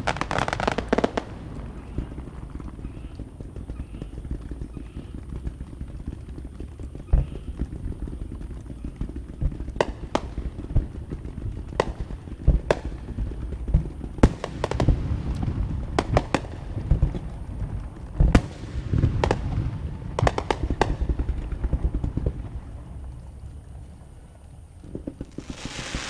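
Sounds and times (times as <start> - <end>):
continuous low rumble: 0.0 - 26.0
fireworks sharp bangs: 0.0 - 26.0.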